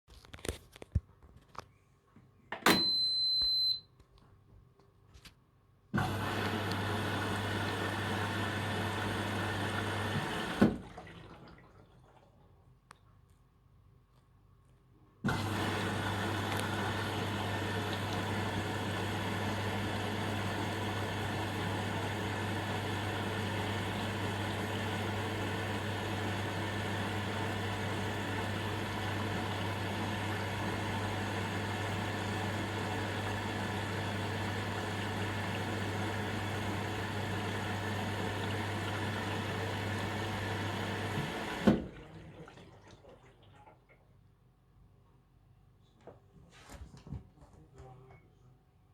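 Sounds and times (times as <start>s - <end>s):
water rushing into washing machine: 6.0s - 12.7s, 15.3s - 44.2s.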